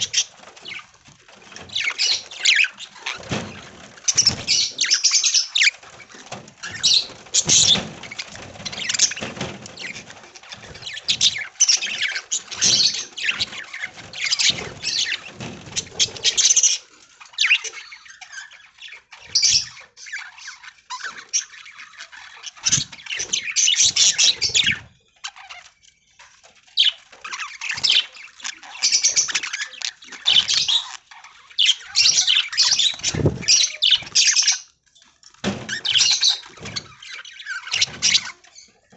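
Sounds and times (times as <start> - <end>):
budgerigars chattering and chirping: 0.0 - 25.8, 26.7 - 34.8, 35.7 - 38.8
scratchy knocks: 6.0 - 13.4.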